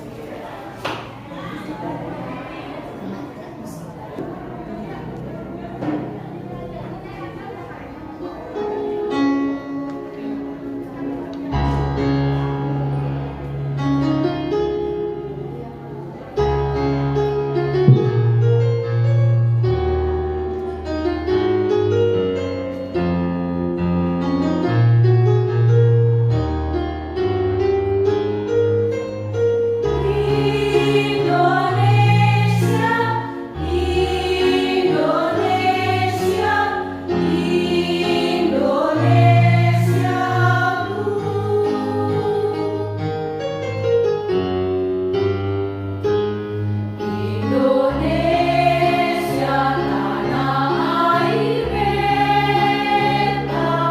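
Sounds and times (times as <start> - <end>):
keyboard chords and bass line: 16.4 - 22.6
choir singing: 29.8 - 43.3, 47.0 - 53.9.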